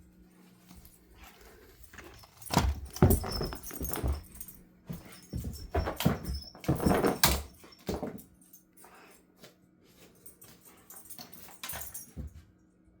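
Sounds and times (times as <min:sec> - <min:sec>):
pet scuffling with a toy: 0:00.4 - 0:12.4.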